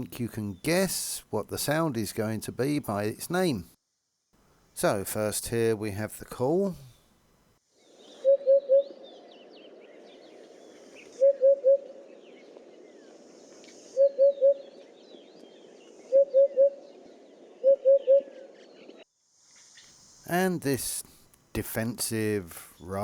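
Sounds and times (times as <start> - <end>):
hoopoe calling: 8.1 - 9.0, 10.3 - 12.2, 13.1 - 19.0.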